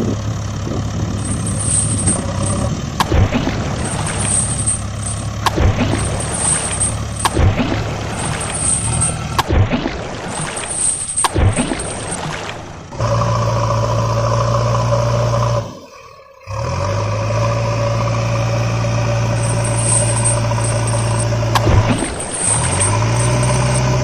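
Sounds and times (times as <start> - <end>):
vehicle engine running: 0.0 - 15.7, 16.5 - 24.0
scraping noise: 1.2 - 9.5.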